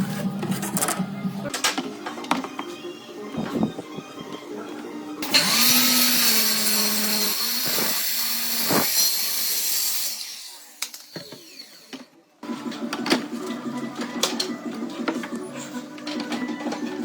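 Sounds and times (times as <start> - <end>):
power tool running: 5.2 - 12.0.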